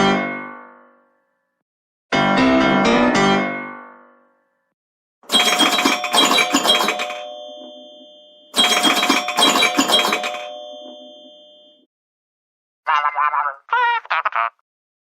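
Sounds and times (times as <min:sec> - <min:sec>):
ding-dong doorbell chime: 0:05.3 - 0:11.9.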